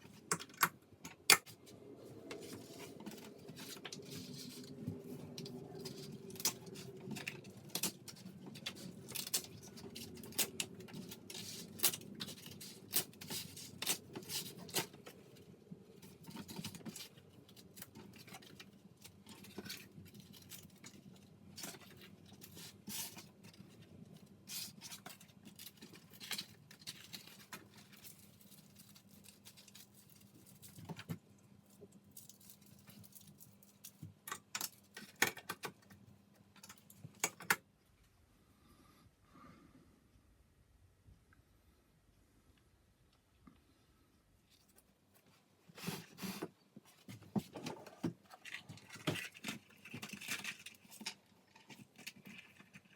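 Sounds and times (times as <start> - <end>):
scratchy rustling of small objects: 1.4 - 37.2, 44.4 - 52.9.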